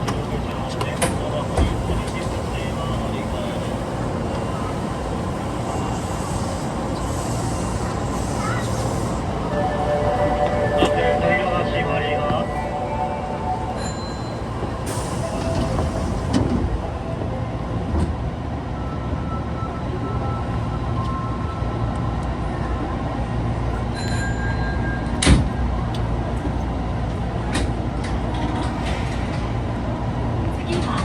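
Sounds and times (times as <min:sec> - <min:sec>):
subway car rumble: 0:00.0 - 0:31.0
faint tones: 0:09.0 - 0:16.3.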